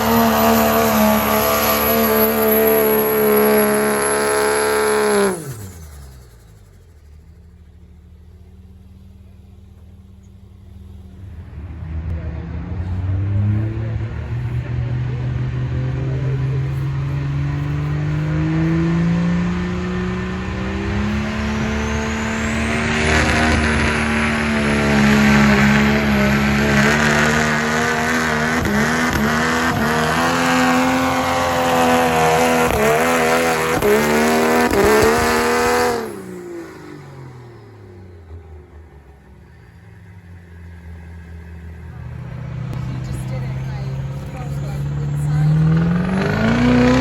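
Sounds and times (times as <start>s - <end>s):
turbocharger whistle: 0.0s - 6.4s, 20.2s - 36.1s
diesel truck engine under load: 0.0s - 47.0s.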